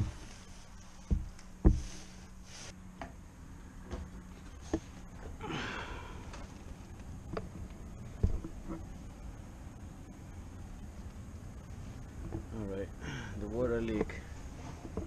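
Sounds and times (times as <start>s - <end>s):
light knocks and thumps: 1.0s - 2.2s, 7.2s - 8.9s, 12.2s - 12.6s.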